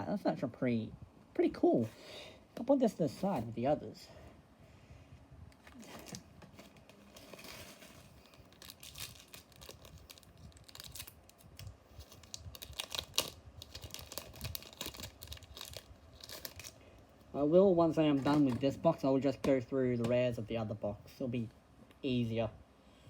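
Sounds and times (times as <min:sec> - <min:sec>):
foil wrapper crinkling: 0:05.7 - 0:16.8.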